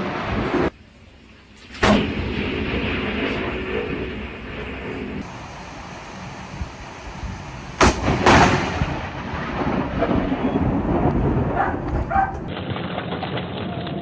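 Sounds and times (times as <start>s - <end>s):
low thunder rumble: 1.9s - 14.0s
thunder crack: 6.5s - 14.0s.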